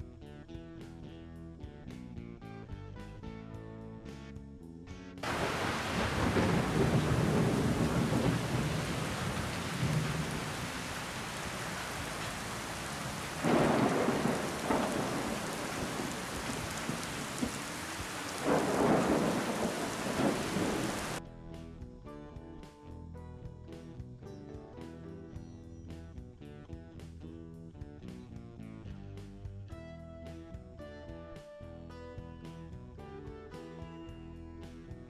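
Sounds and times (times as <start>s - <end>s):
heavy rain: 5.2s - 21.2s
thunder rumbling: 5.2s - 21.2s.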